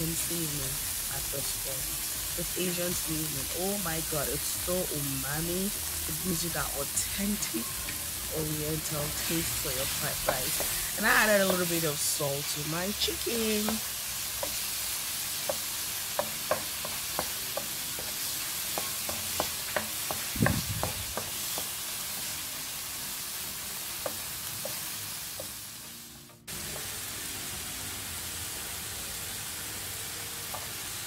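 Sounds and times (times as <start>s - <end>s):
chicken sizzling in hot oil: 0.0s - 25.9s, 26.5s - 31.0s
wooden spatula clicking on pan: 15.5s - 21.7s.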